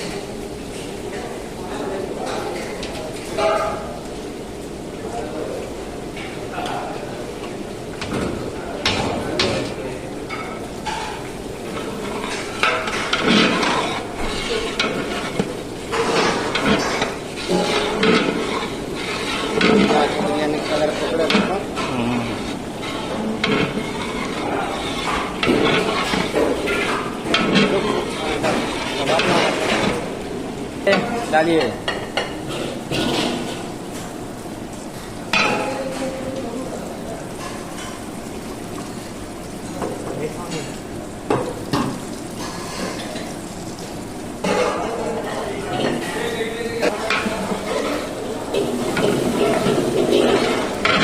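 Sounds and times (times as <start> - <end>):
food sizzling: 0.0 - 51.0
metal spoon scraping a pot: 11.7 - 30.0.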